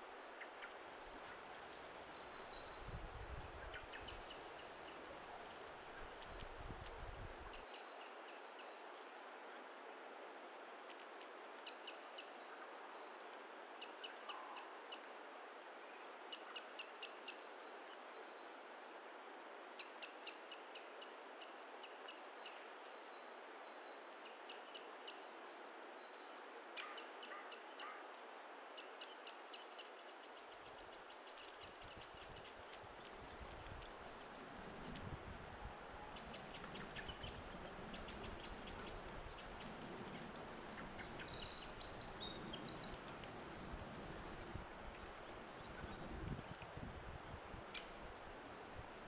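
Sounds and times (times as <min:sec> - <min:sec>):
faint steady hiss: 0:00.0 - 0:49.0
small bird calling: 0:35.8 - 0:46.4.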